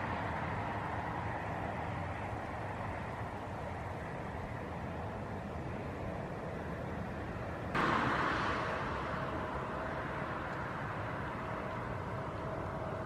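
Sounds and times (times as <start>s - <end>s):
jet engines rumbling: 7.7s - 13.0s.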